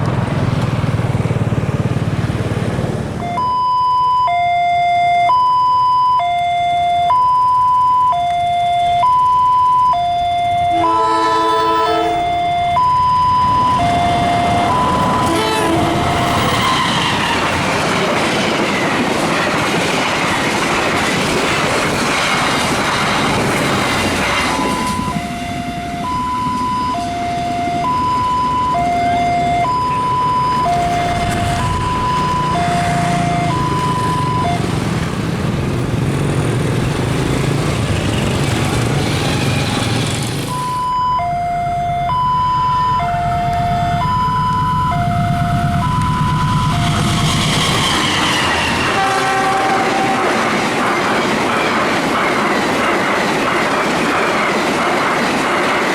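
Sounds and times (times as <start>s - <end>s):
train rumbling and wheel clatter: 0.0s - 3.2s, 10.2s - 40.8s, 42.6s - 55.9s
two-tone level crossing alarm: 3.2s - 17.2s, 24.4s - 34.9s, 40.5s - 47.6s
train horn: 10.7s - 12.6s, 14.2s - 17.7s, 46.9s - 50.5s.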